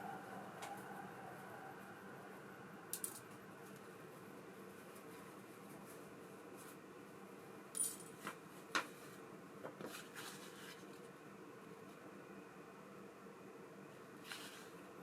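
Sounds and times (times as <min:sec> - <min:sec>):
steady low hum: 0:00.0 - 0:07.7
small metal parts clicking: 0:02.9 - 0:03.2.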